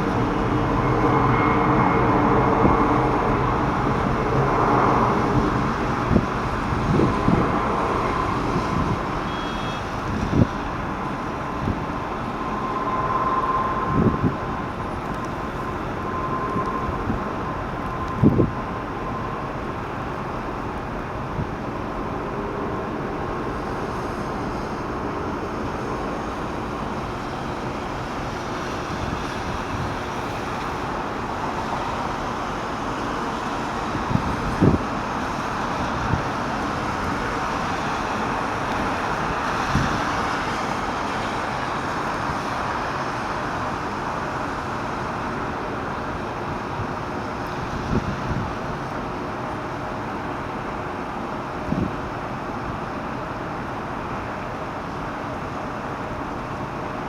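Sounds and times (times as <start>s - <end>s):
traffic rumble: 0.0s - 57.0s.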